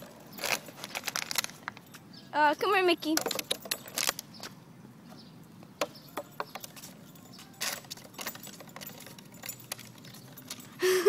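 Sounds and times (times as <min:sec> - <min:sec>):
plastic bottle clicking and rattling: 0:00.4 - 0:01.8.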